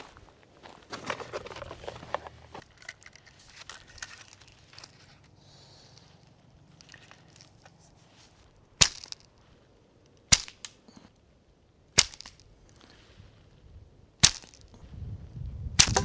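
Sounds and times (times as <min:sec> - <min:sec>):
sharp knocks: 0:15.8 - 0:16.0.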